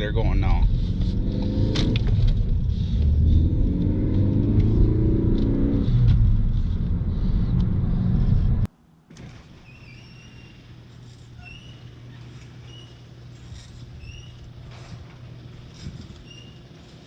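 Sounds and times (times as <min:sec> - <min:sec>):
car engine accelerating: 0:00.0 - 0:08.7
road rumble: 0:00.0 - 0:17.0.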